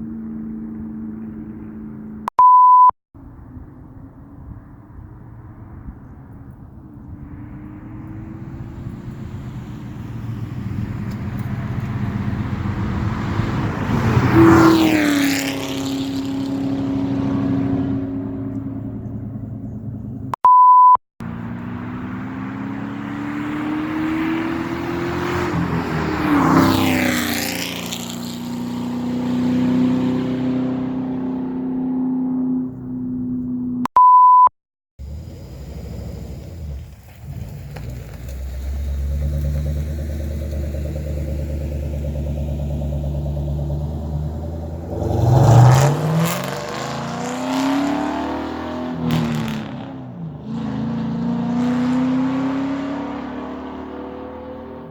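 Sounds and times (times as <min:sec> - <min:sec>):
short steady beep: 0:02.3 - 0:02.9, 0:20.4 - 0:21.0, 0:33.9 - 0:34.5
car engine passing by: 0:07.0 - 0:19.6, 0:21.2 - 0:33.5, 0:35.0 - 0:54.9.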